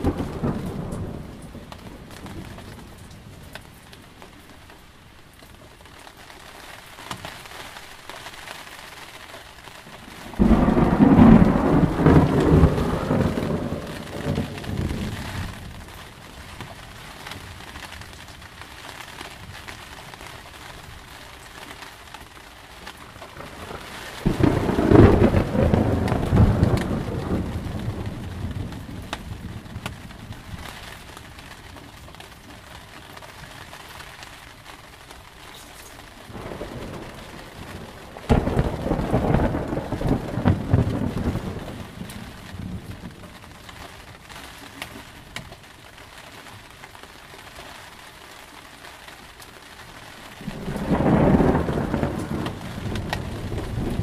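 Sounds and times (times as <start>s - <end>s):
thunderclaps rumbling: 0.0s - 3.6s, 10.0s - 18.2s, 23.0s - 32.0s, 36.0s - 44.3s, 50.3s - 54.0s
steady rain: 0.0s - 54.0s.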